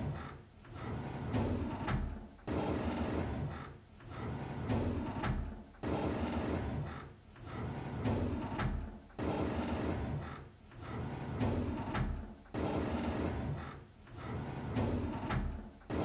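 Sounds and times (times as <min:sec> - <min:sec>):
drawer sliding open with knock: 0:11.0 - 0:12.3, 0:14.3 - 0:16.0.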